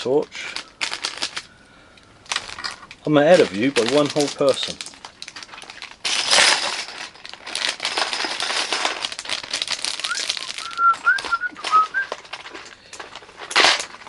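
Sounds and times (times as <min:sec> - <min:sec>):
plastic bags crinkling: 0:00.0 - 0:14.0
plastic bricks rattling and clicking: 0:02.3 - 0:14.0
high whistle-like notes: 0:10.1 - 0:12.1.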